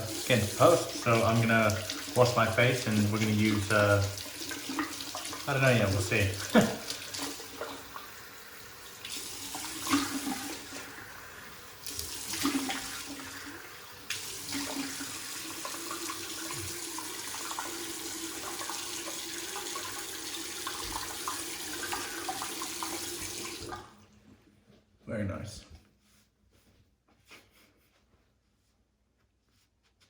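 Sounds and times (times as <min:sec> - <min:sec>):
water splashing: 0:00.0 - 0:08.3, 0:09.0 - 0:11.2, 0:11.8 - 0:17.8
tap running into sink: 0:14.1 - 0:23.8.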